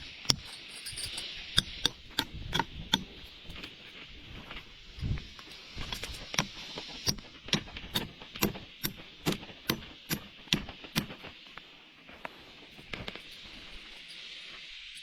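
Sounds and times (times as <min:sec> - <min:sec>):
constant hiss: 0:00.0 - 0:15.0.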